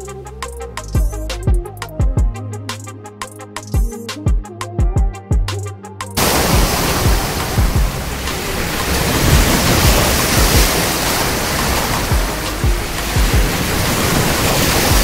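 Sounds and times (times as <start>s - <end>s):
background music: 0.0s - 15.0s
low thumps: 6.2s - 15.0s
ocean waves breaking on shore: 6.2s - 15.0s.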